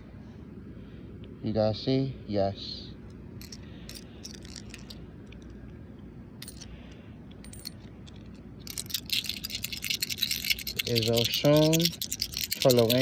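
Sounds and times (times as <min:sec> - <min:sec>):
low background rumble: 0:00.0 - 0:13.0
small hard objects clinking: 0:03.4 - 0:05.5, 0:07.4 - 0:13.0.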